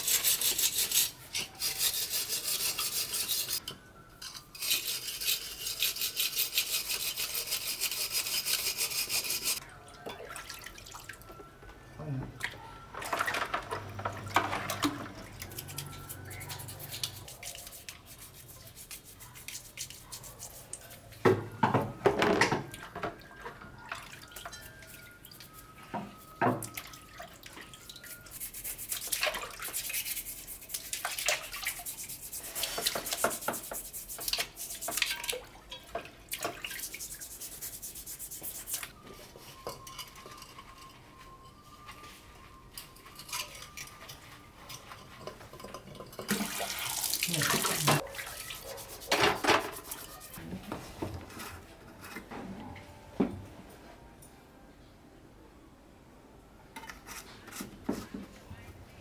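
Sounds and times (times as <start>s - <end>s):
brush scrubbing: 0.0s - 3.6s, 4.6s - 9.6s, 15.4s - 21.0s, 28.0s - 35.3s, 36.5s - 38.9s, 46.3s - 50.4s.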